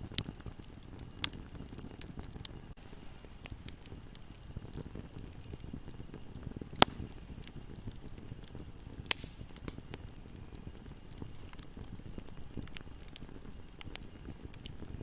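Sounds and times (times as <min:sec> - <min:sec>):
campfire flames crackling: 0:00.0 - 0:15.0
loud sharp fire pops: 0:03.4 - 0:15.0.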